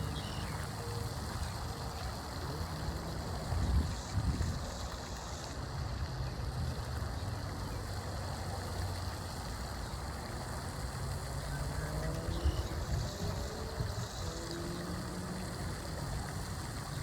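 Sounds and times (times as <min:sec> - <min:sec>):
distant engine hum: 0:00.0 - 0:17.0.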